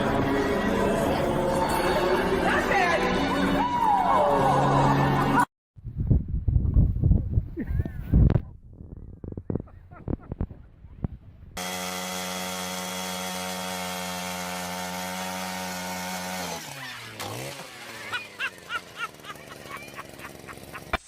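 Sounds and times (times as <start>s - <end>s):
small engine running: 11.6s - 21.0s.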